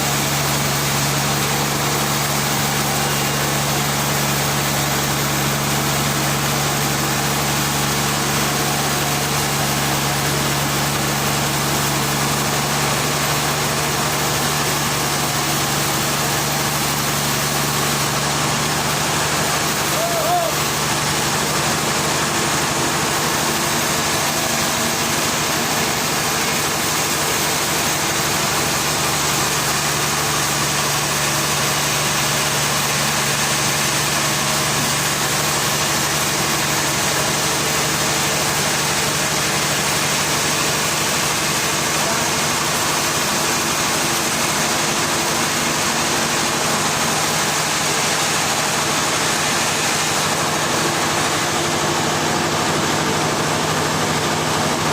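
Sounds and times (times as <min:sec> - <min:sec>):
engine idling: 0:00.0 - 0:54.9.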